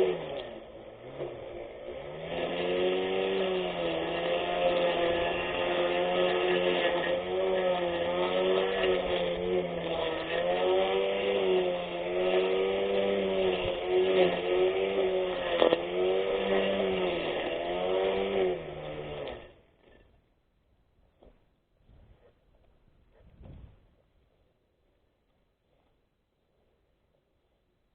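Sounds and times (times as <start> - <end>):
electric lawn mower motor whine: 0.0 - 20.2.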